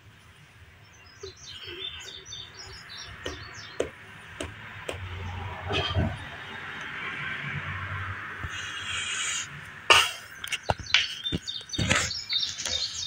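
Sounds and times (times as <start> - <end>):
small birds chirping: 0.2 - 4.5, 8.4 - 13.0.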